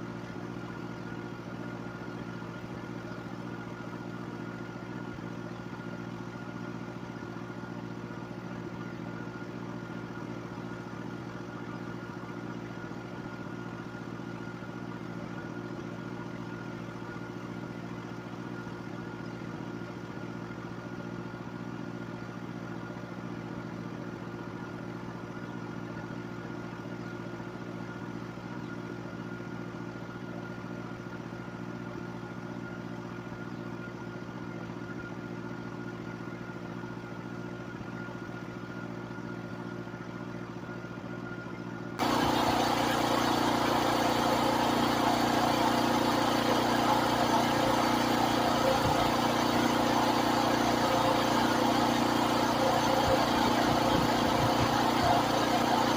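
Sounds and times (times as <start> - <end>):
pressure washer engine running: 42.0 - 55.9.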